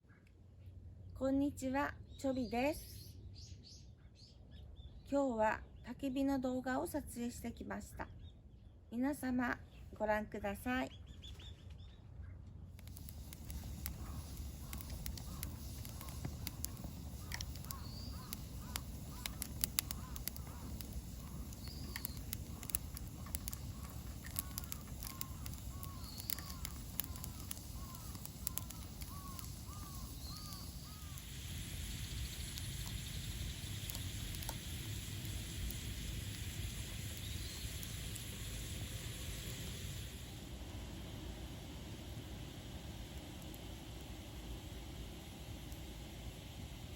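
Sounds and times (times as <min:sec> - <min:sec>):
birds calling: 0:10.9 - 0:38.4
campfire crackling and popping: 0:12.8 - 0:46.9
steady hiss: 0:12.8 - 0:46.9.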